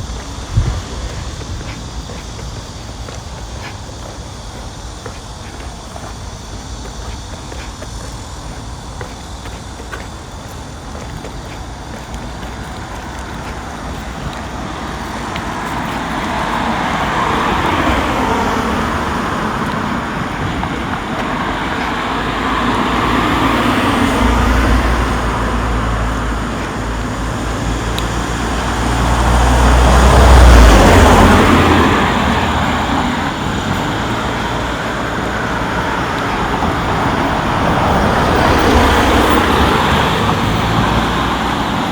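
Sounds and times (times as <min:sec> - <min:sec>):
road traffic passing: 0:00.0 - 0:41.9
vehicle deep rumble: 0:00.0 - 0:41.9.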